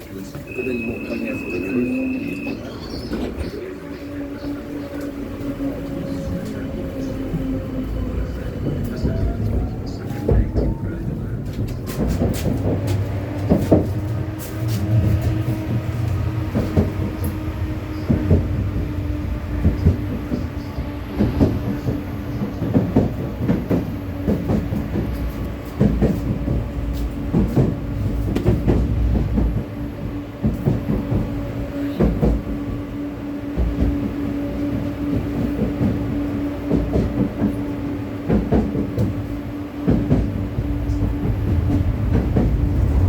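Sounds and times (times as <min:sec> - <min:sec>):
tram drive hum: 0:00.0 - 0:43.0.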